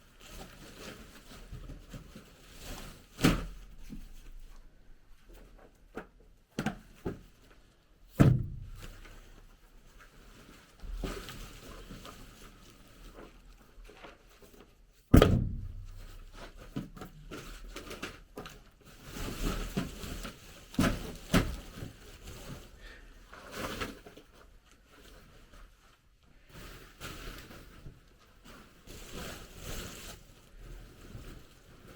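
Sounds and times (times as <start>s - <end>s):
heavy thumps: 8.2s - 9.3s, 15.1s - 17.2s
sharp loud bang: 15.2s - 16.4s.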